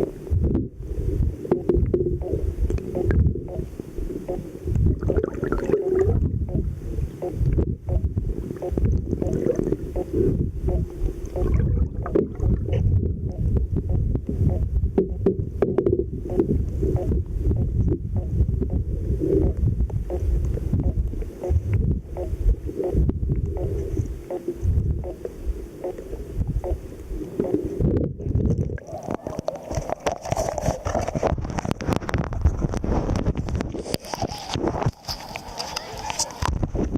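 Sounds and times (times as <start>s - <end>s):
muffled underwater water rushing: 0.0s - 36.9s
water splashing: 8.4s - 10.2s, 10.8s - 12.9s, 26.6s - 36.6s.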